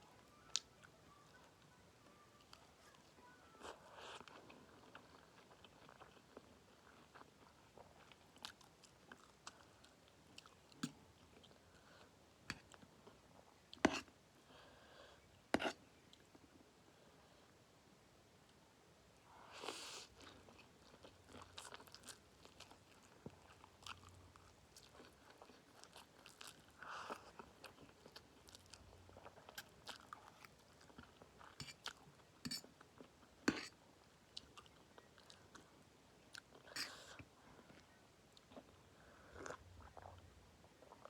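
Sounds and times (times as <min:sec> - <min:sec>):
chewing crunchy noodles: 0:02.4 - 0:14.1, 0:19.8 - 0:41.0.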